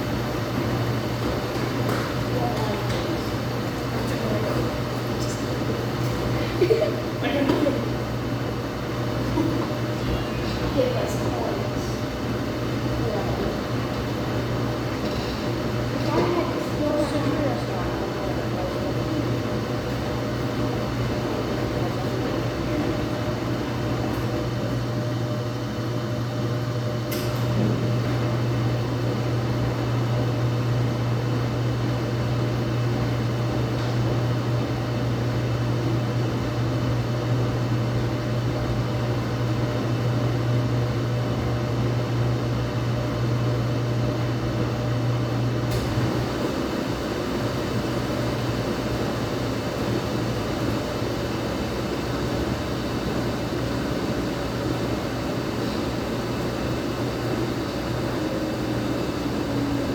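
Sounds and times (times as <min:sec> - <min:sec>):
washing machine motor hum: 0:00.0 - 0:59.9.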